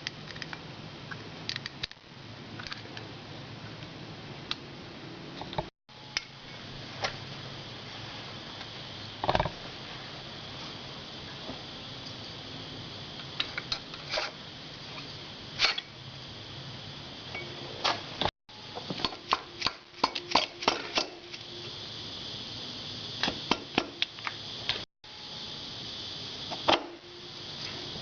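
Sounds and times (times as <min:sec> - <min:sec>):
steady hiss: 0:05.9 - 0:28.0.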